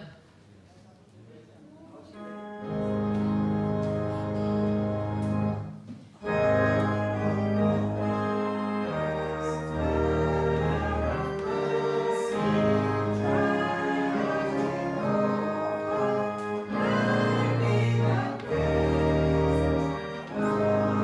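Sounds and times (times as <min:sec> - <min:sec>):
organ playing a hymn: 0:02.2 - 0:21.0
voices singing: 0:06.2 - 0:21.0.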